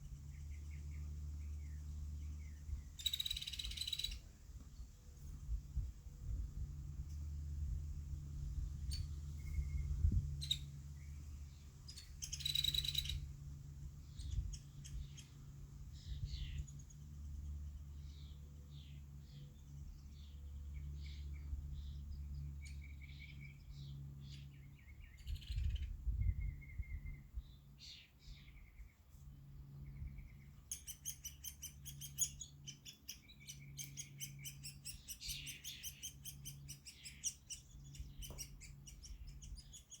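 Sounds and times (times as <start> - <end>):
steady low hum: 0.0 - 40.0
woodpecker chick chirping: 2.2 - 4.3, 8.8 - 10.7, 11.9 - 13.3, 30.2 - 40.0.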